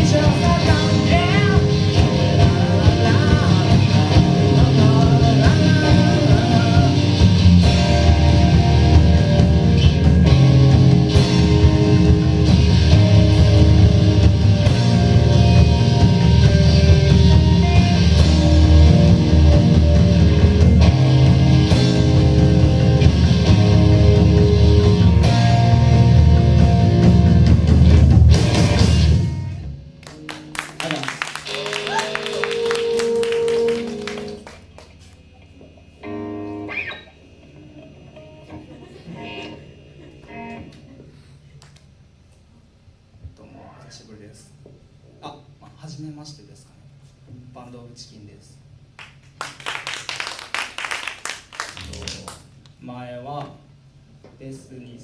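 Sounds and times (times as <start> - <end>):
person singing: 0.0 - 7.1
live rock band: 0.0 - 41.3.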